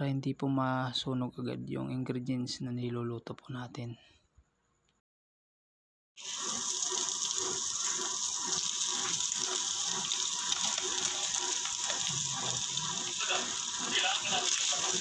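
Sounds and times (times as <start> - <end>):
food sizzling in a frying pan: 6.2 - 15.0.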